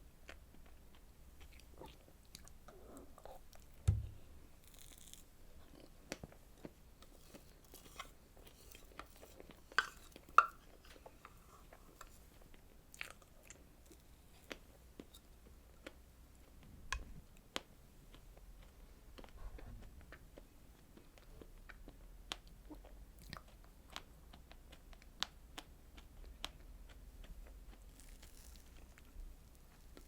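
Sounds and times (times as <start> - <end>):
person chewing: 6.6 - 15.1, 21.0 - 30.0.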